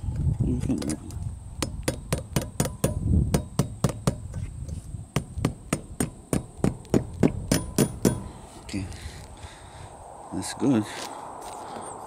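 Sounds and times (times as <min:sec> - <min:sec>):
hammer driving a nail: 0:01.6 - 0:04.4, 0:05.2 - 0:08.4.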